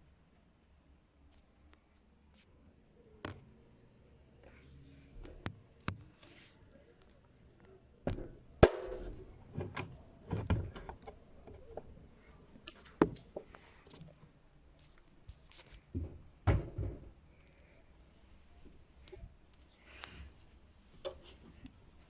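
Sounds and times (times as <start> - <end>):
soft rustling: 9.5 - 16.2.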